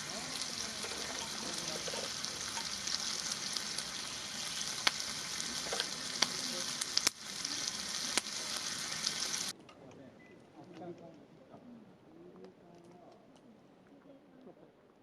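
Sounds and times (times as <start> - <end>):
meat sizzling in a pan: 0.0 - 9.5.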